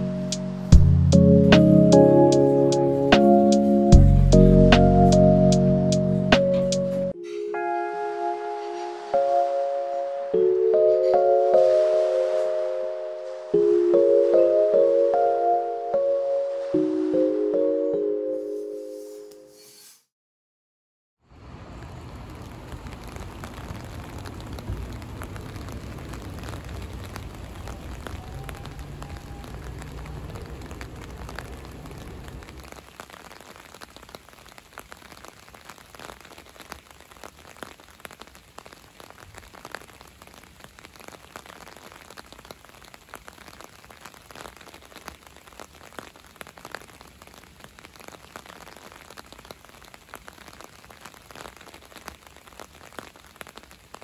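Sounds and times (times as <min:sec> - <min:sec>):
rain drops ticking: 0:00.0 - 0:07.1, 0:21.5 - 0:54.0.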